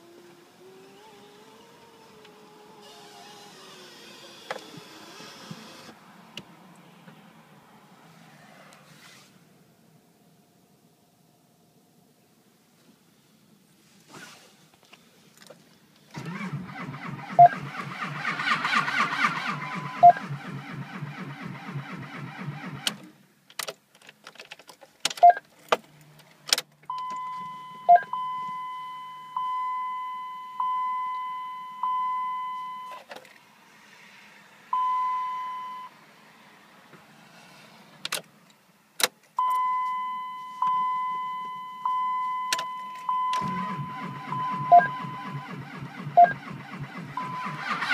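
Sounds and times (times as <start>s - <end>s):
diesel engine cranking on starter: 16.0s - 23.2s, 43.1s - 47.9s
car warning chime dinging: 26.9s - 33.0s, 34.8s - 35.9s, 39.4s - 46.4s.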